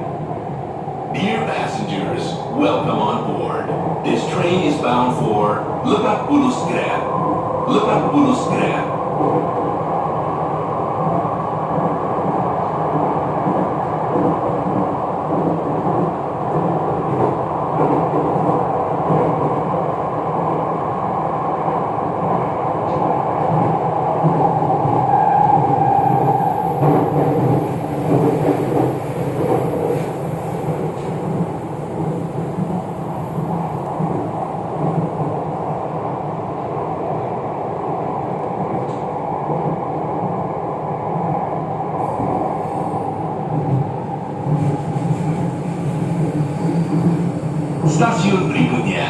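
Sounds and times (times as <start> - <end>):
train wheels rumbling: 22.2 - 35.7
train whine: 22.9 - 36.7.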